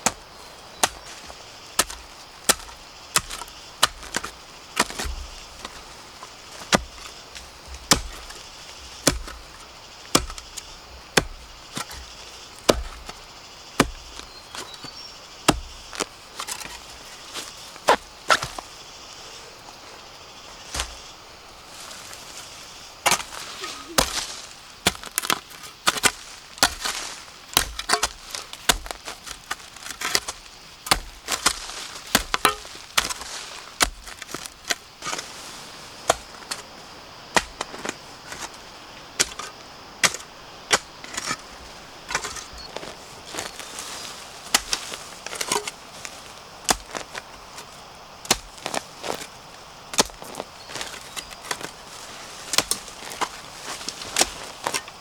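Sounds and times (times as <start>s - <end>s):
blade chopping bamboo: 7.9s - 13.2s, 23.0s - 34.8s.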